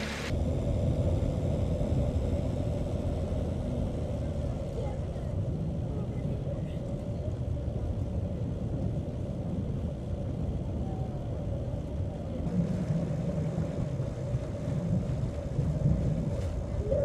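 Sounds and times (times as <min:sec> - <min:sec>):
boat motor running: 0:00.0 - 0:17.0.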